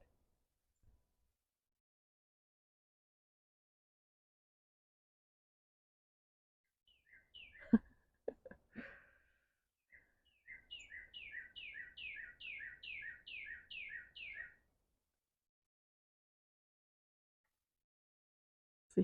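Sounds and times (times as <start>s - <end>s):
songbird whistled song: 6.9s - 7.8s, 9.9s - 14.6s.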